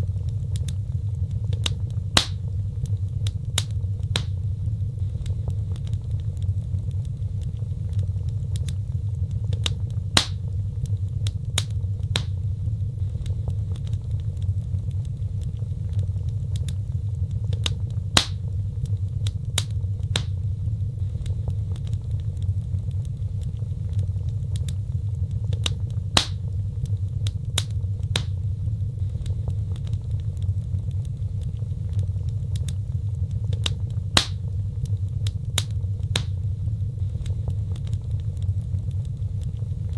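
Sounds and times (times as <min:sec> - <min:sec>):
fire crackles and pops: 0:00.0 - 0:39.9
fire rumbling in fireplace: 0:00.0 - 0:39.9.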